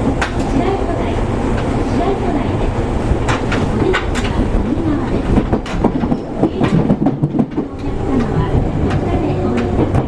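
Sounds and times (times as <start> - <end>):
train running rumble: 0.0 - 10.0
wheels clicking over rail joints: 0.0 - 10.0.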